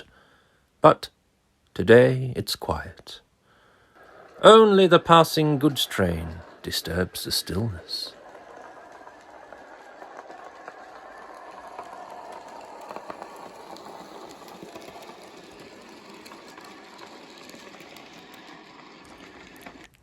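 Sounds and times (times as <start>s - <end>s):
model train wheels clicking: 3.6s - 20.0s
small electric motor whirring: 4.3s - 20.0s.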